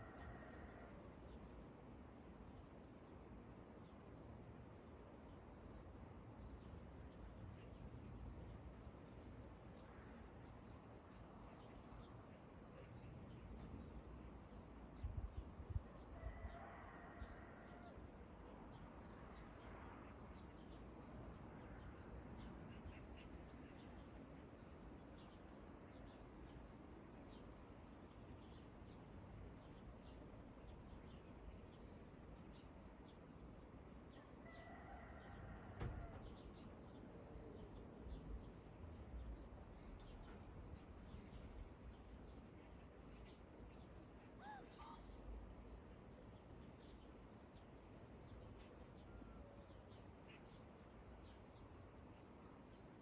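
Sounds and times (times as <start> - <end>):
crickets chirping: 0.0 - 53.0
distant bird calls: 44.4 - 45.3.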